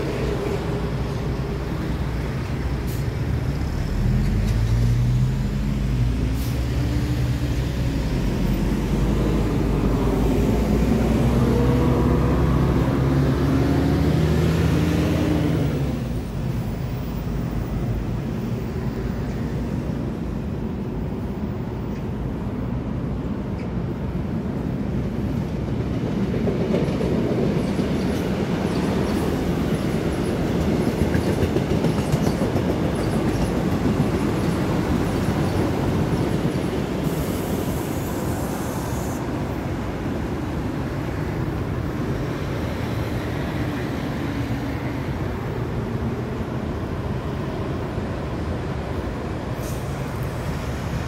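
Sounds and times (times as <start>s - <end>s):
train wheels rumbling on rail: 0.0s - 51.0s
brief high hiss: 49.6s - 50.4s.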